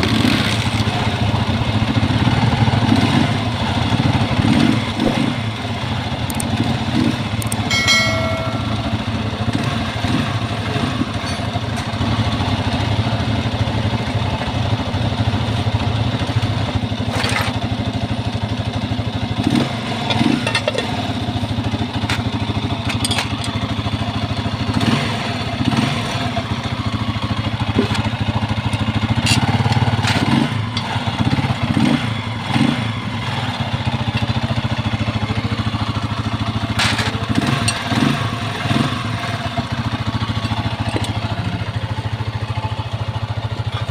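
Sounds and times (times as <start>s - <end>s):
motorcycle engine idling: 0.0s - 43.9s
sharp clicks and knocks: 6.2s - 6.6s, 7.4s - 8.9s, 40.4s - 41.2s
brief high tone: 7.7s - 9.2s.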